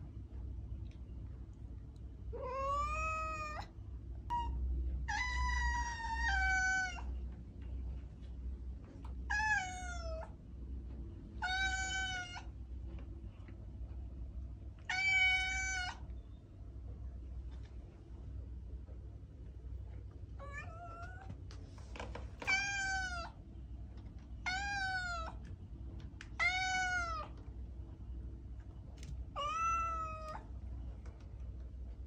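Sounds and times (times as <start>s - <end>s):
cat meowing: 2.3s - 3.7s, 4.3s - 7.1s, 9.3s - 10.3s, 11.4s - 12.5s, 14.9s - 16.1s, 20.4s - 21.3s, 22.4s - 23.4s, 24.4s - 25.4s, 26.4s - 27.4s, 29.4s - 30.4s.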